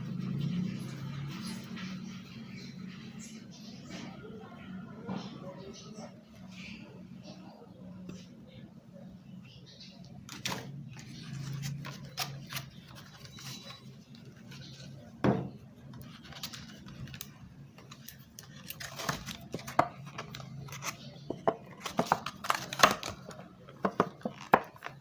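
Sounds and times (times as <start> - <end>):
hands handling plastic packaging: 10.3 - 15.1, 15.8 - 25.0.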